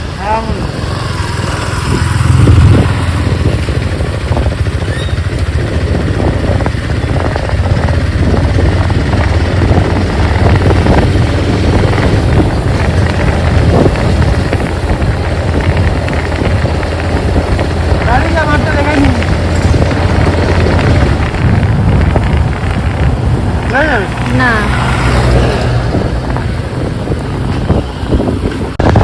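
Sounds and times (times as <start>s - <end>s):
motorcycle engine running: 0.0s - 29.0s
wind buffeting microphone: 0.0s - 29.0s.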